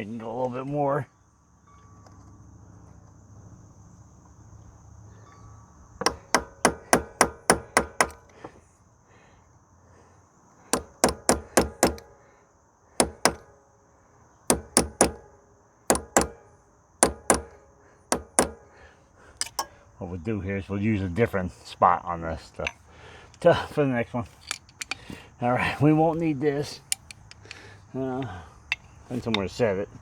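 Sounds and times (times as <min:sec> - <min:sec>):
hammer striking steel punch: 0:06.0 - 0:08.2, 0:10.8 - 0:12.1, 0:13.0 - 0:13.5, 0:14.5 - 0:18.7, 0:19.4 - 0:19.7.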